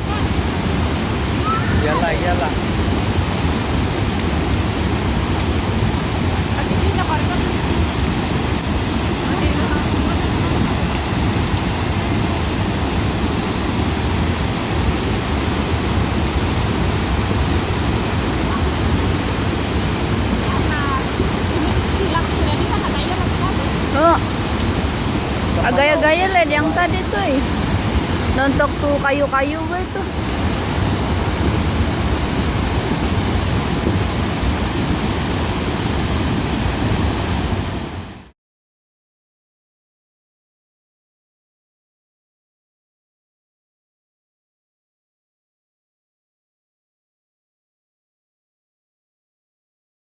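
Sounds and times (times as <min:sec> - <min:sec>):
flood water rushing: 0:00.0 - 0:38.3.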